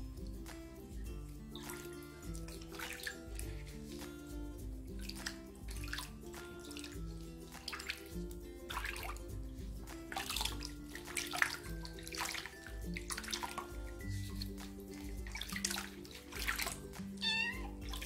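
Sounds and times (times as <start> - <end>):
light background music: 0.0 - 18.0
water splashing in a plastic basin: 0.0 - 18.0.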